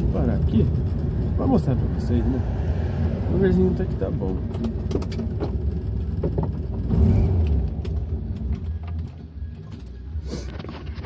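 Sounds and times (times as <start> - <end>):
car engine idling: 0.0 - 11.0
clicks and knocks of handling: 4.5 - 6.8, 7.7 - 11.0.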